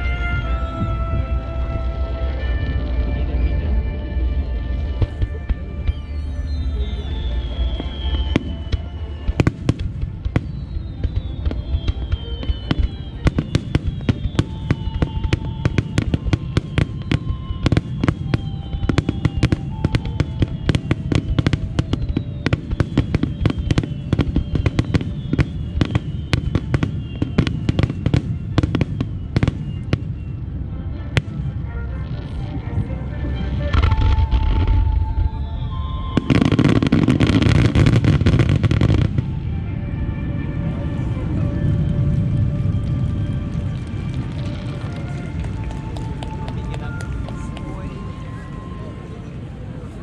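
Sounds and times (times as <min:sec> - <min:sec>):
fireworks bursting with bangs: 0:00.0 - 0:49.0
whistling fireworks shells: 0:05.8 - 0:30.5, 0:33.8 - 0:39.4.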